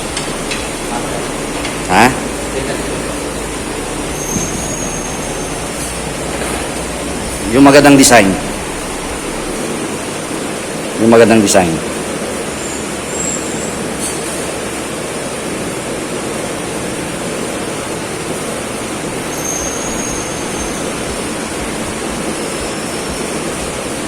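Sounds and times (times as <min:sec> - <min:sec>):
steady rushing noise: 0:00.0 - 0:24.0
faint high whistles: 0:19.3 - 0:21.0.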